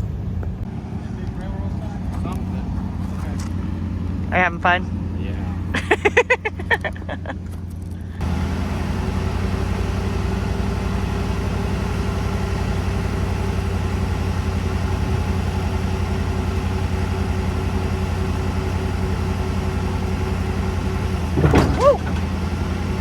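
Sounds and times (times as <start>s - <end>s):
forklift engine droning: 0.0s - 23.0s.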